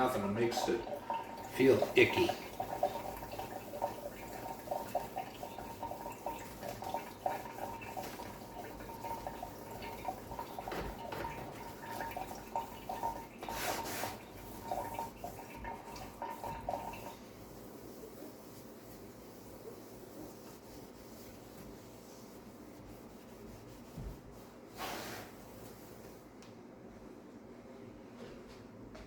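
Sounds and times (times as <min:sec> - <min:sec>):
sponge scrubbing wet surface: 0:00.0 - 0:26.3.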